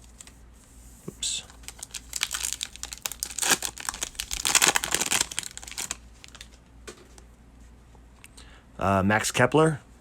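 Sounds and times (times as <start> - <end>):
wrapper crinkling and tearing: 1.6 - 6.6.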